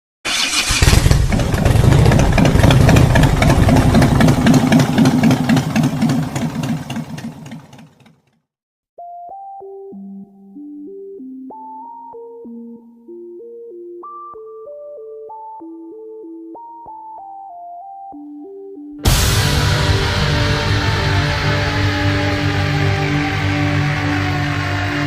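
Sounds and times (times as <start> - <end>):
rough pulsing noise: 0.8 - 8.0, 19.0 - 25.0
synthesizer keyboard melody: 9.0 - 19.0.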